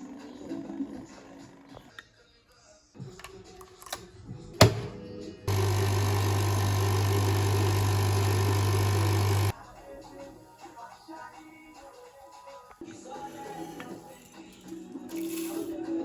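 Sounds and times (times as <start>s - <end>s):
coffee machine pump buzzing: 5.5s - 9.6s.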